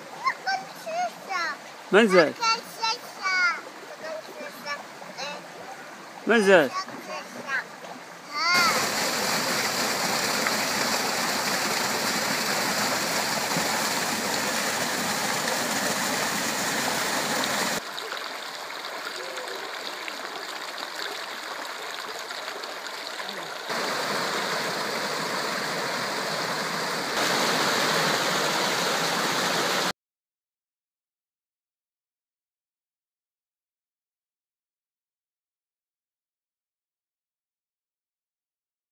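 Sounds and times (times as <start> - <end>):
stream water babbling: 0.0 - 29.9.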